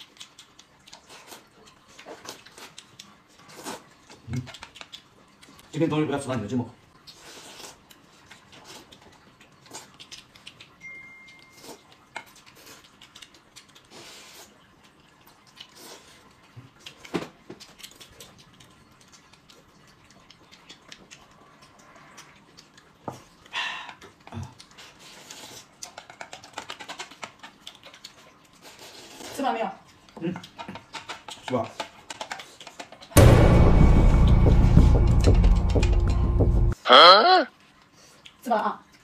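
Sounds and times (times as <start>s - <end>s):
wet chewing: 0.0s - 5.8s, 6.9s - 33.2s, 37.6s - 39.0s
slurping noodles: 7.1s - 7.8s, 24.7s - 27.2s.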